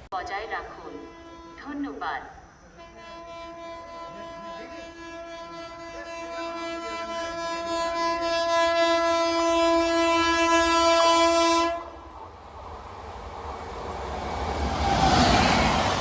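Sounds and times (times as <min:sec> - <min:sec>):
locomotive air horn: 0:00.9 - 0:01.8, 0:02.7 - 0:12.1
train rumbling: 0:02.9 - 0:16.0.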